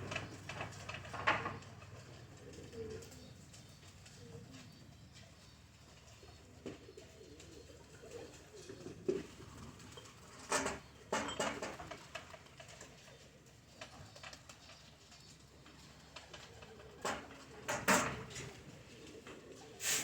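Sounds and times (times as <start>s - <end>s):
pigeons cooing: 0.0s - 10.9s, 15.5s - 20.0s.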